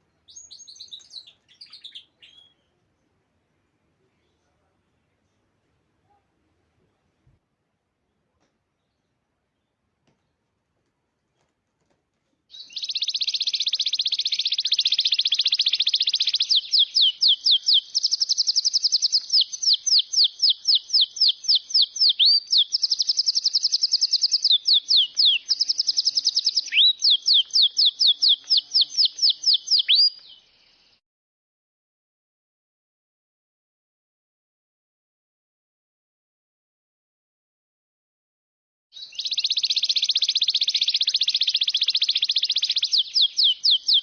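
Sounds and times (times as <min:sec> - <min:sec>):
songbird singing: 0:00.0 - 0:10.6, 0:12.5 - 0:31.0, 0:39.0 - 0:44.0.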